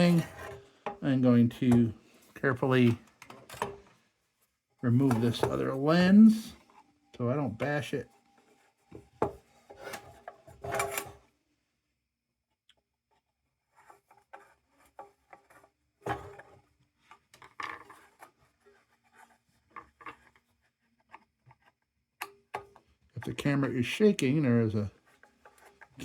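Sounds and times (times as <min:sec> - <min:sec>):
scraping and rubbing: 0:00.0 - 0:03.8.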